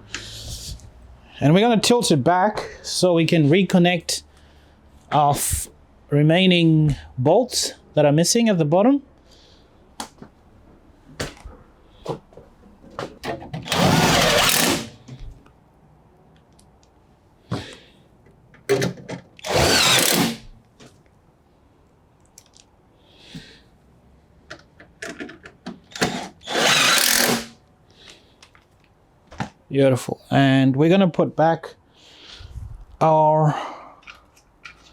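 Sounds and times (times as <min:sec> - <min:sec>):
power drill driving bolts: 0:13.5 - 0:15.1, 0:18.7 - 0:20.5, 0:25.9 - 0:27.6
handling clicks and knocks: 0:24.4 - 0:26.1.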